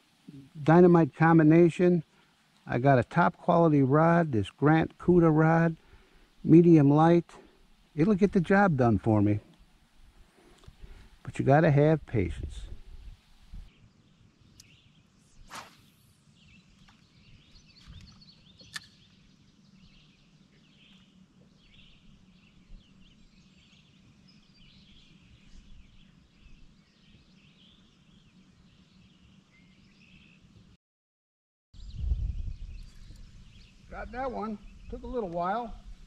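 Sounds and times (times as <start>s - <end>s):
birds chirping: 0.0s - 30.7s, 31.8s - 36.0s
low steady hum: 0.0s - 30.8s
sharp click: 18.0s - 19.0s.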